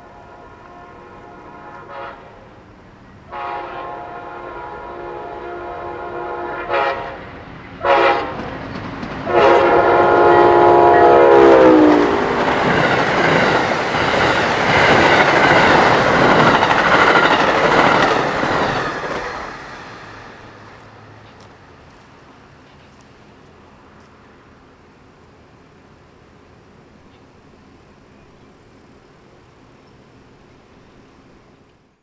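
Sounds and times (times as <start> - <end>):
locomotive horn blasts: 0.0 - 2.5, 3.3 - 7.2, 7.8 - 8.4, 9.2 - 12.3
train cars rumbling on rails: 0.0 - 24.7.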